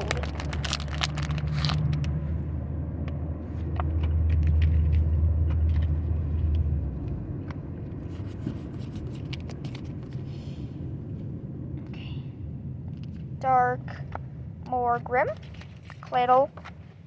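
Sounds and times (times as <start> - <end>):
foil pack crinkling: 0.0 - 2.1
low rumble: 0.0 - 17.0.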